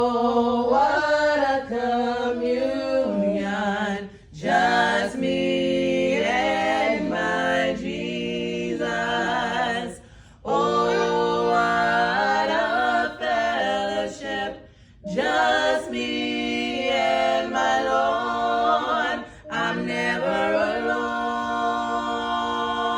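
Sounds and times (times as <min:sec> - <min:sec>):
a cappella group singing: 0:00.0 - 0:22.9.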